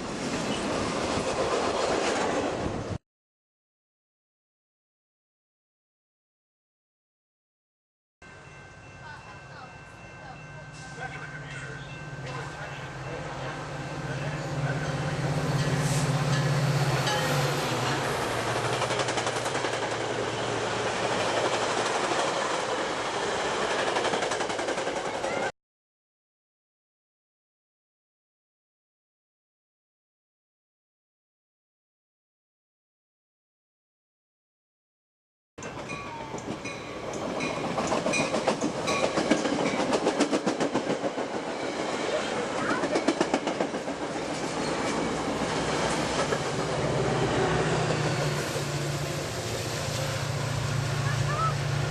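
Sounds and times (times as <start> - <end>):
locomotive engine hum: 8.4 - 24.1, 41.1 - 51.9
train wheels clattering on rails: 15.6 - 25.5, 35.6 - 49.2.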